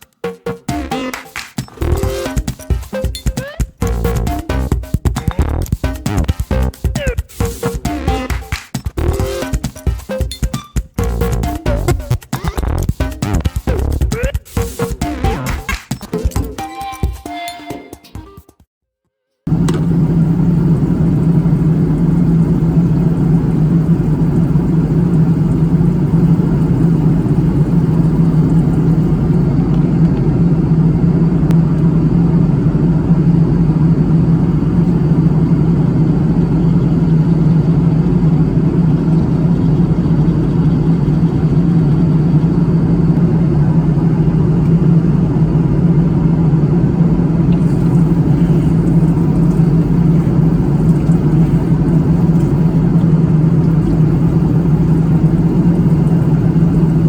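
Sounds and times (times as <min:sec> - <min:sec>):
airliner cabin drone: 0:19.5 - 0:57.0.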